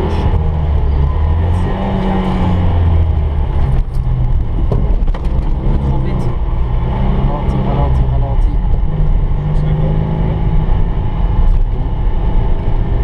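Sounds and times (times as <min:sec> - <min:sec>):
car engine running under load: 0:00.0 - 0:13.0
knocks and rattles: 0:03.5 - 0:06.1.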